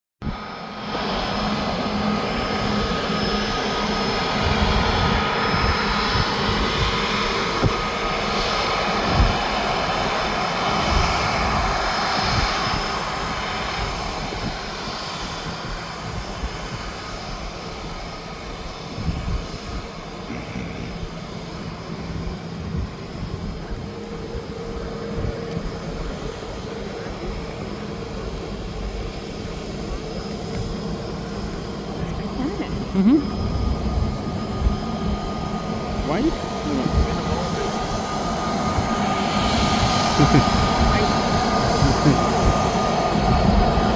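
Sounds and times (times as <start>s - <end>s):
jet engines whining: 0.2s - 43.9s.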